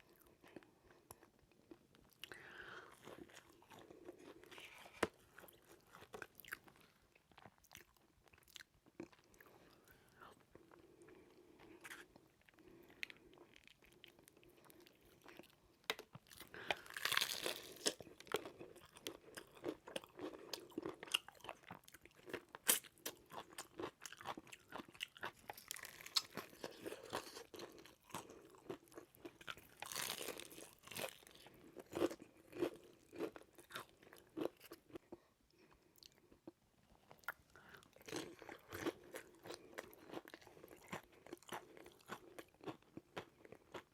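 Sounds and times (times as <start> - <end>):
crunchy fried chicken chewing: 0.0 - 43.9.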